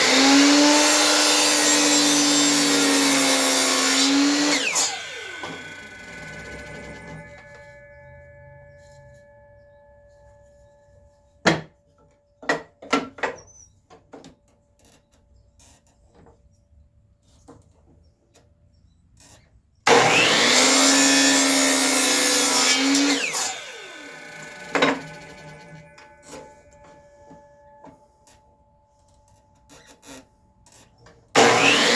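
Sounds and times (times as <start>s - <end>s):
electric saw cutting wood: 0.0s - 7.8s, 19.9s - 27.0s, 31.3s - 31.9s.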